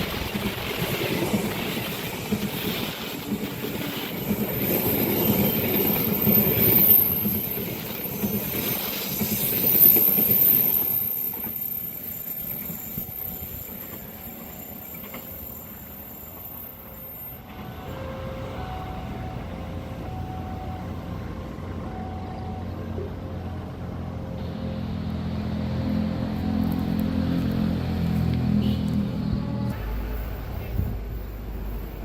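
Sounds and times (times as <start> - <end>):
wheels clattering on rail joints: 0.0 - 20.0
train wheels squealing: 0.3 - 26.7.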